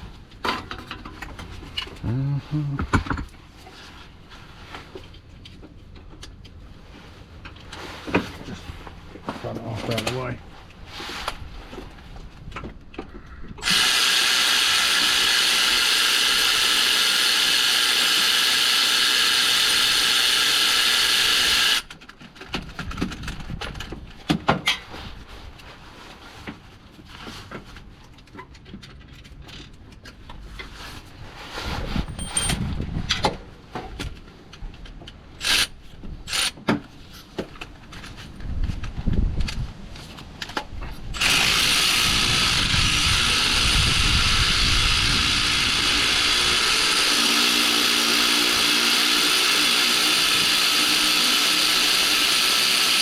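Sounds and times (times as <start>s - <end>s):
power drill running: 13.6s - 21.9s, 41.2s - 53.0s.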